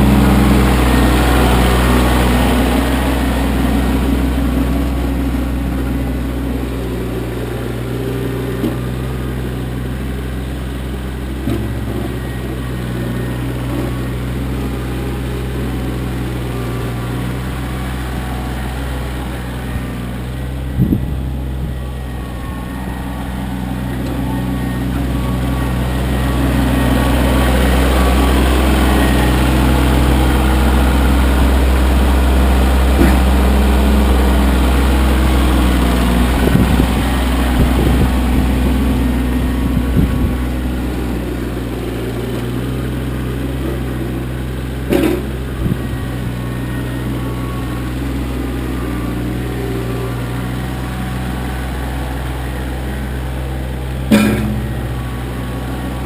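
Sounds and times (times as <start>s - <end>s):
tractor diesel engine running: 0.0s - 56.0s
knocks and clunks: 32.9s - 33.5s, 44.9s - 46.0s, 54.0s - 54.8s.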